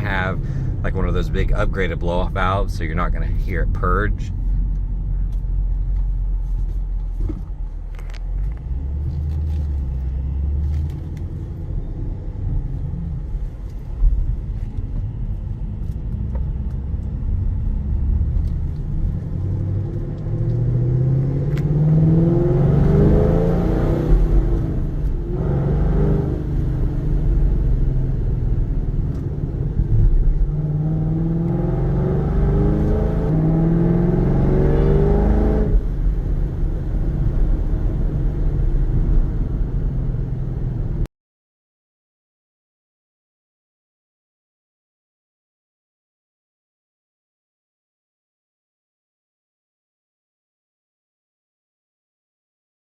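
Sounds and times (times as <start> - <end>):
car engine accelerating: 0.0 - 41.1.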